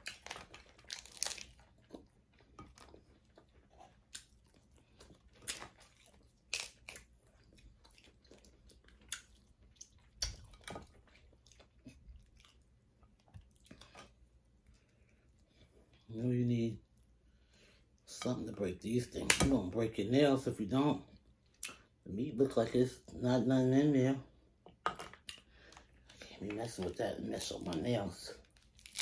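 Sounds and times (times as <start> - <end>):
person chewing and lip smacking: 0.0 - 16.0, 21.4 - 22.0.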